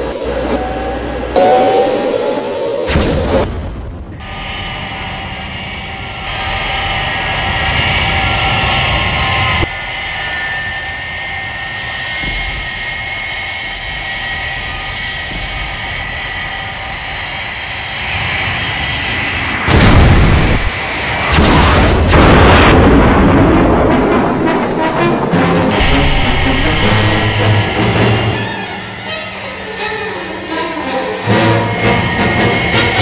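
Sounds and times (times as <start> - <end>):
jet engine drone: 0.0 - 33.0
loud boom: 1.4 - 4.3, 19.6 - 24.7
heavy crash with rumble: 19.4 - 24.8.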